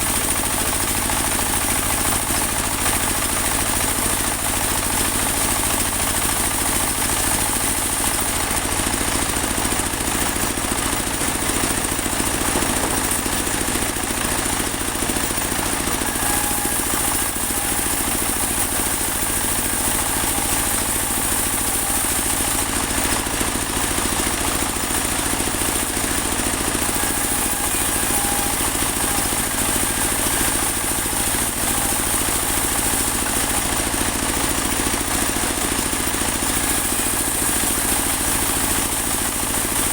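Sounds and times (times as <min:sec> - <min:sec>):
bandsaw mill engine running: 0:00.0 - 0:39.9
band blade sawing through log: 0:11.1 - 0:39.9.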